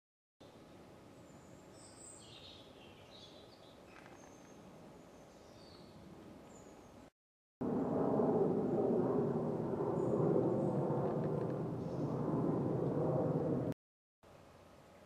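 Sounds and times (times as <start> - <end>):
small birds chirping: 1.2 - 7.1.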